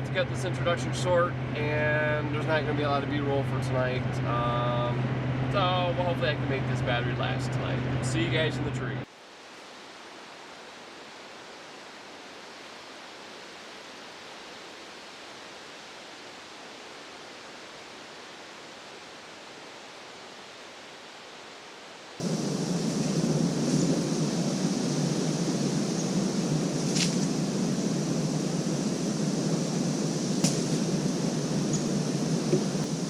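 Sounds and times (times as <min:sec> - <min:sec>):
loud sound with low hum: 0:00.0 - 0:09.0, 0:22.2 - 0:33.0
steady hiss: 0:08.2 - 0:33.0.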